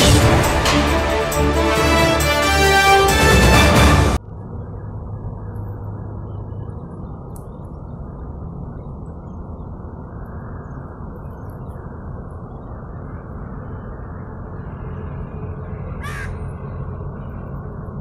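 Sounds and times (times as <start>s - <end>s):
low rumbling background noise: 3.6s - 18.0s.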